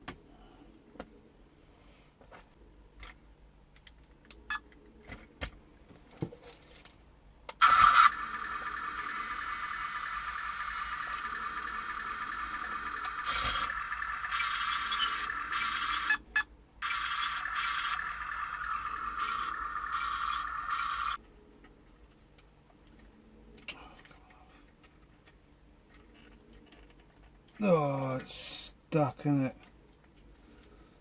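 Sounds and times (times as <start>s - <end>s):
toy tank motor whirring: 7.6s - 16.2s, 16.8s - 21.2s.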